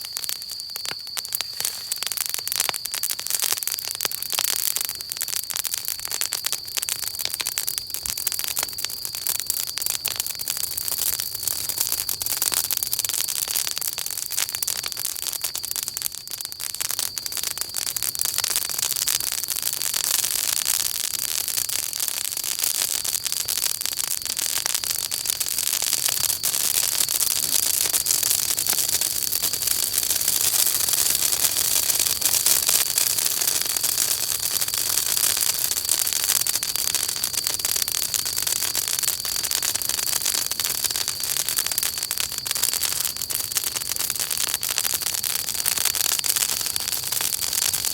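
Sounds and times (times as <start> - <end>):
fire hiss: 0.0 - 5.0, 24.6 - 47.9
campfire crackling and popping: 0.0 - 47.9.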